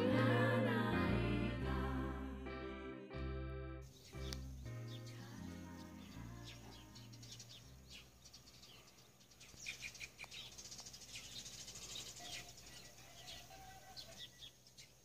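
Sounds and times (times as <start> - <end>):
small birds chirping: 3.8 - 15.0.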